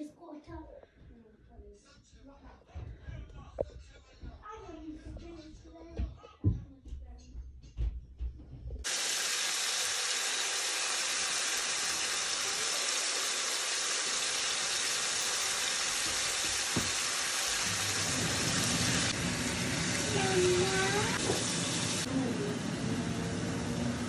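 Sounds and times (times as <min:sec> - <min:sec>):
chicken sizzling in hot oil: 0:08.9 - 0:24.0
knock on pan: 0:15.2 - 0:17.2.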